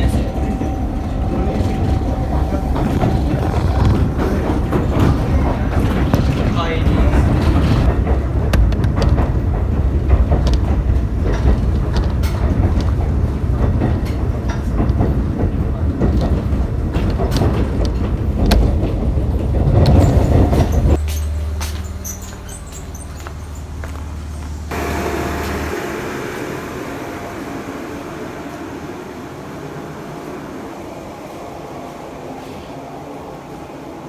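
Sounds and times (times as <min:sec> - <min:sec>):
train rumbling over rail joints: 0:00.0 - 0:34.0
steady low hum: 0:24.4 - 0:31.7.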